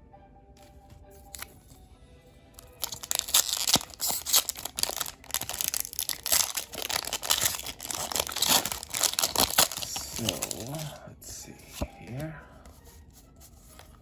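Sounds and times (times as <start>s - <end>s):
quiet background music: 0.0s - 14.0s
foil wrapper crinkling: 2.6s - 11.0s.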